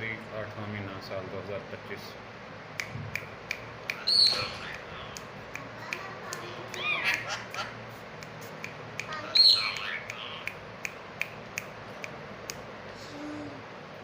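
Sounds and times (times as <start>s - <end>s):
parakeet squawking: 3.8s - 5.4s, 6.5s - 7.9s, 9.0s - 10.6s.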